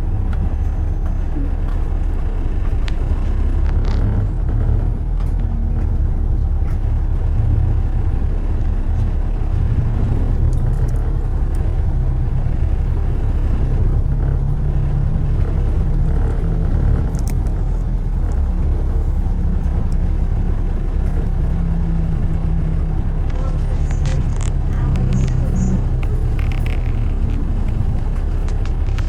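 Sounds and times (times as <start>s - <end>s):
road traffic rumble: 0.0s - 29.0s
faint clicks: 8.6s - 29.0s.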